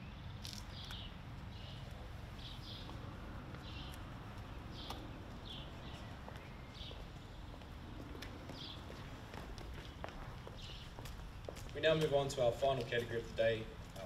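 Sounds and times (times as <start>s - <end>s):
low outdoor rumble: 0.0s - 14.0s
small bird chirping: 0.4s - 7.7s
footsteps on paving: 0.4s - 14.0s.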